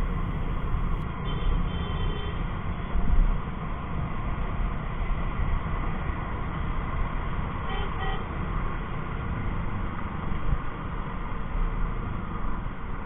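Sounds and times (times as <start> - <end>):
motorcycle engine rumble: 0.0 - 1.0.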